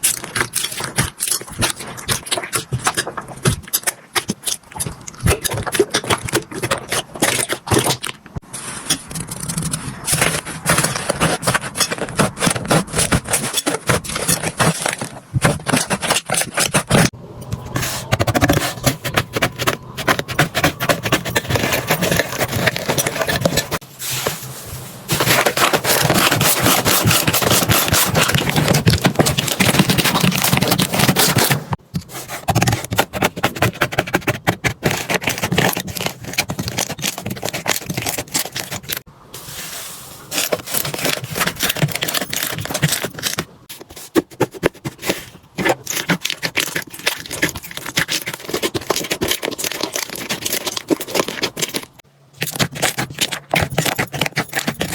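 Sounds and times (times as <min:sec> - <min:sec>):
slime crackling and squelching: 0:00.0 - 0:23.8, 0:40.3 - 0:54.9.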